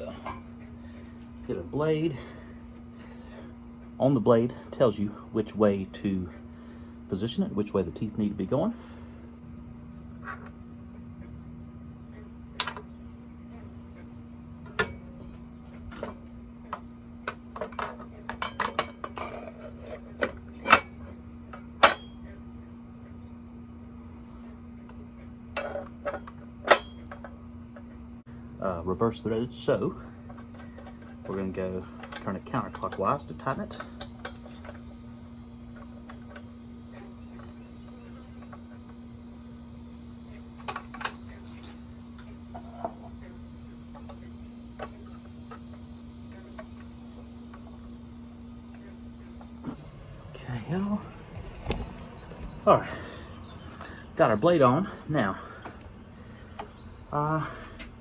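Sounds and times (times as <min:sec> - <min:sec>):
steady low hum: 0:00.0 - 0:58.0
metal saw parts clinking: 0:17.3 - 0:22.1.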